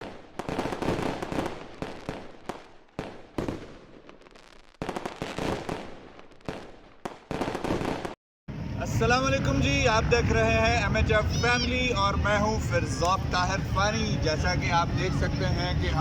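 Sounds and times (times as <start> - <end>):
fireworks bangs and crackles: 0.0 - 8.2.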